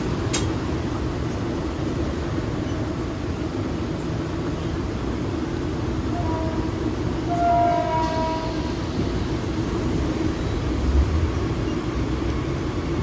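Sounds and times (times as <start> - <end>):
train rumbling: 0.0 - 13.0
train horn: 6.1 - 9.0.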